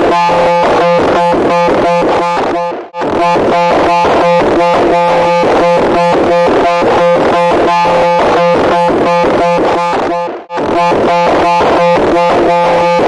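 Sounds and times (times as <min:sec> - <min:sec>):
pulsing electronic buzzing tone: 0:00.0 - 0:13.0.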